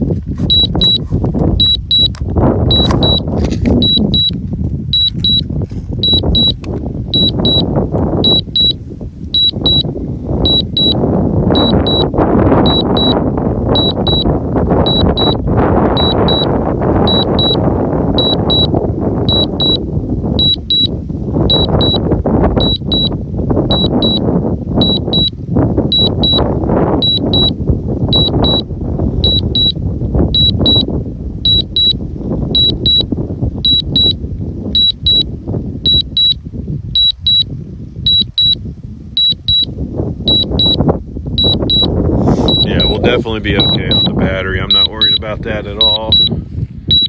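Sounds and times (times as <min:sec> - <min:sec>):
wind buffeting microphone: 0:00.0 - 0:47.0
remote controller double beeps: 0:00.5 - 0:01.0, 0:01.6 - 0:05.4, 0:06.0 - 0:11.0, 0:11.6 - 0:15.4, 0:16.0 - 0:17.6, 0:18.2 - 0:18.7, 0:19.3 - 0:19.8, 0:20.4 - 0:20.9, 0:21.5 - 0:22.0, 0:22.6 - 0:24.2, 0:24.8 - 0:25.3, 0:25.9 - 0:26.4, 0:27.0 - 0:28.6, 0:29.2 - 0:29.8, 0:30.4 - 0:32.0, 0:32.6 - 0:34.2, 0:34.8 - 0:35.3, 0:35.9 - 0:36.4, 0:37.0 - 0:37.5, 0:38.1 - 0:38.6, 0:39.2 - 0:39.7, 0:40.3 - 0:40.8, 0:41.4 - 0:47.0.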